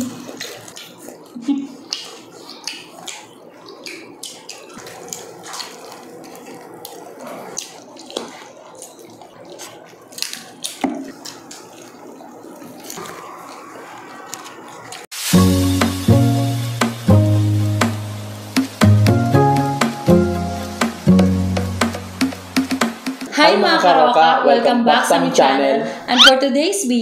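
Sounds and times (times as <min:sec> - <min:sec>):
lip-smacking: 0:00.0 - 0:15.0, 0:26.1 - 0:26.4
wet chewing: 0:00.0 - 0:15.1
crackling bites of chicken: 0:00.2 - 0:15.0.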